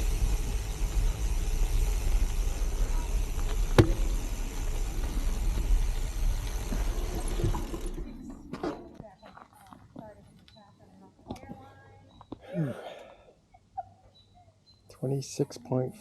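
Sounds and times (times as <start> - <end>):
bike tyres rumbling on gravel: 0.0 - 9.9.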